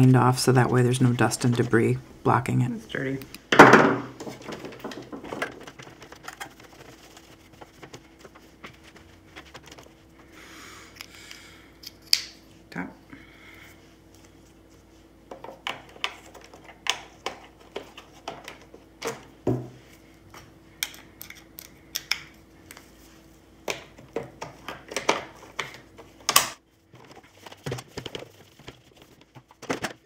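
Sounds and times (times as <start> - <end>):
faint steady hum: 0.0 - 30.0
plastic parts clicking and clattering: 3.6 - 7.0, 23.7 - 30.0.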